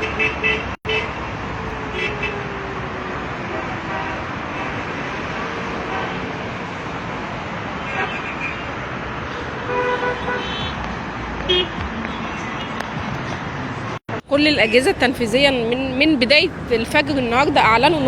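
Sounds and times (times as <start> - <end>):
car horn toots: 0.0 - 1.2, 9.7 - 10.8, 11.4 - 12.3
road traffic noise: 0.0 - 18.0.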